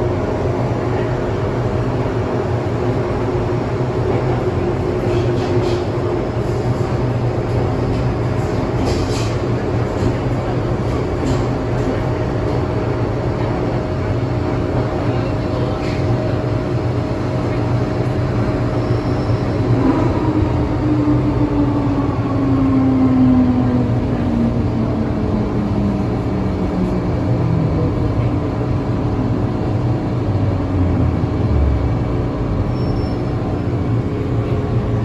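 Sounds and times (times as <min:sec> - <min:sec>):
train rumbling: 0:00.0 - 0:35.0
train brakes howling: 0:18.6 - 0:22.3.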